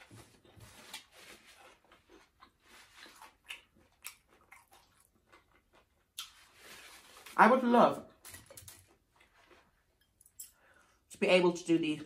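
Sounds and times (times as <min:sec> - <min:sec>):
close-up chewing crackles: 0:00.8 - 0:06.7.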